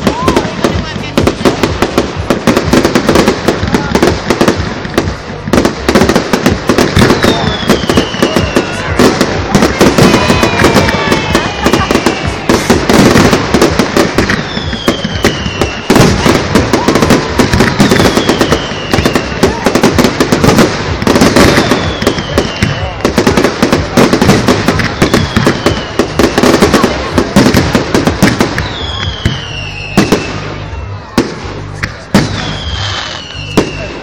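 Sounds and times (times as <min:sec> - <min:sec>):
firework bangs and crackling: 0:00.0 - 0:34.0
falling firework whistles: 0:06.8 - 0:20.6, 0:21.2 - 0:23.0, 0:24.2 - 0:34.0.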